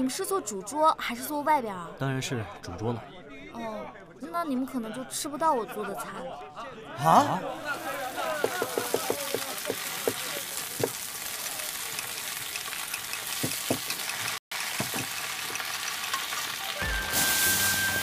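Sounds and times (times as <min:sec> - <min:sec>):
food sizzling in hot oil: 0:07.7 - 0:18.0
kitchen utensils knocking: 0:12.9 - 0:15.2
music: 0:16.5 - 0:18.0.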